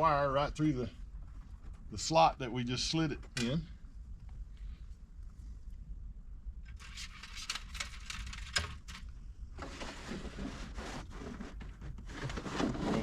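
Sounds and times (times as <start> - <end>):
steady low hum: 0.0 - 10.5
cable rustling and scraping: 6.7 - 13.0.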